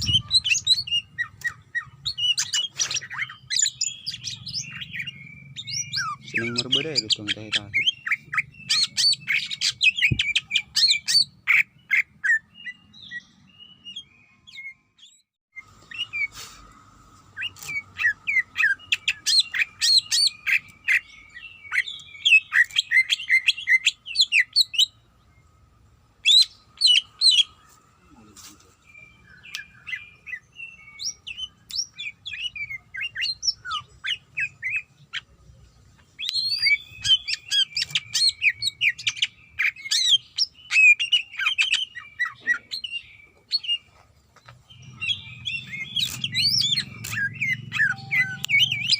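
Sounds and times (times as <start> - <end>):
bird singing chattering whistles: 0.0 - 14.1, 44.8 - 48.9
low hum: 45.2 - 48.9
faint steady tone: 47.8 - 48.9.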